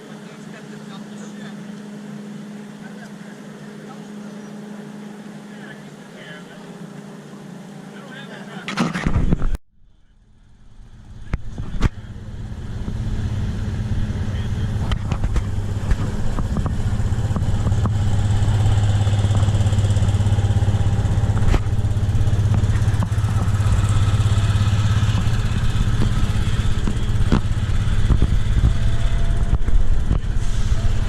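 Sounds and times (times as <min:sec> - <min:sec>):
vehicle engine idling: 0:09.8 - 0:31.0.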